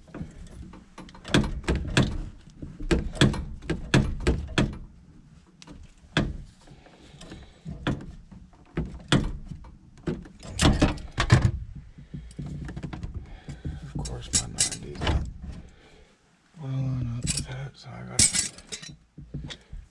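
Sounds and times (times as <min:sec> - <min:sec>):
tools clanking on metal pipes: 0:13.8 - 0:15.3, 0:17.2 - 0:19.6.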